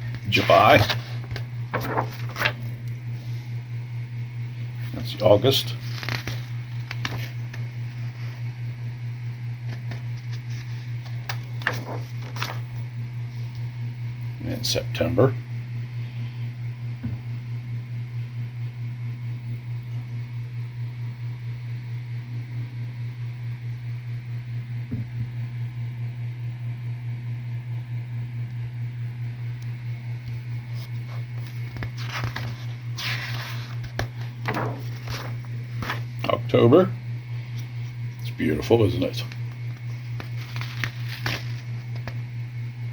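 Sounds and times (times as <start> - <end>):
steady low hum: 0.0 - 42.9
paper pages rustling: 0.1 - 3.4, 5.6 - 8.4, 9.7 - 12.8, 30.7 - 36.1, 39.3 - 42.2.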